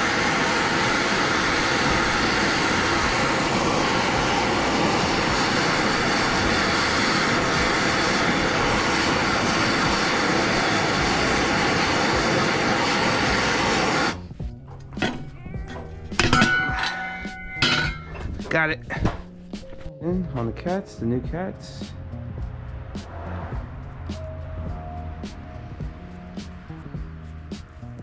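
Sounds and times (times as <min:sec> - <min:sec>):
gas torch blowing: 0:00.0 - 0:14.3.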